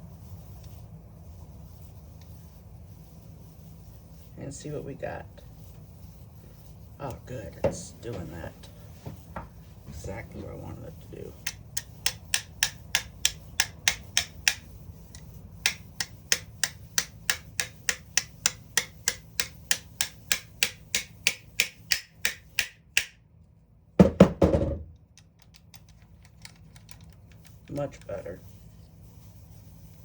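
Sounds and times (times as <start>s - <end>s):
clatter of parts: 25.1s - 28.1s.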